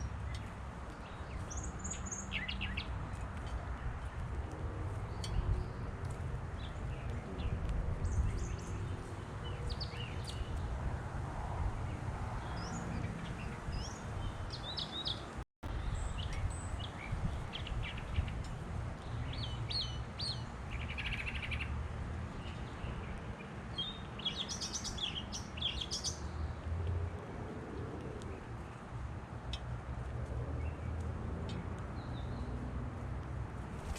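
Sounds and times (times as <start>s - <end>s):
birds chirping: 0.0s - 10.7s, 11.8s - 26.6s.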